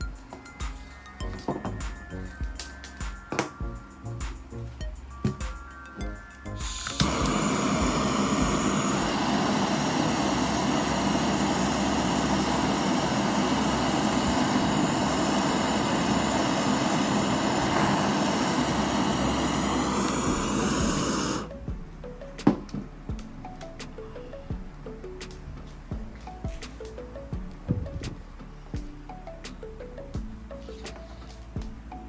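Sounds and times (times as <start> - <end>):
loud mechanical noise: 6.6 - 21.5.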